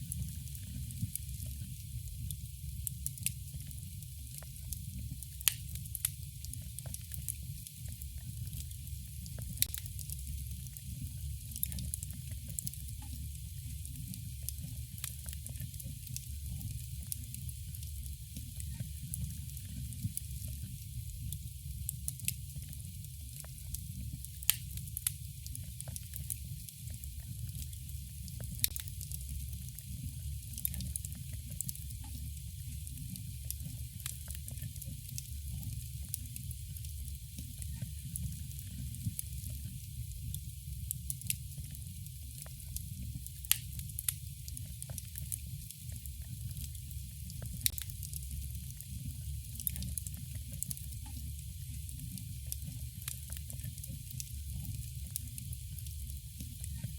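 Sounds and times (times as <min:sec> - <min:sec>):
campfire crackling: 0:00.1 - 0:56.1
fire pops: 0:24.3 - 0:26.4, 0:43.4 - 0:44.9.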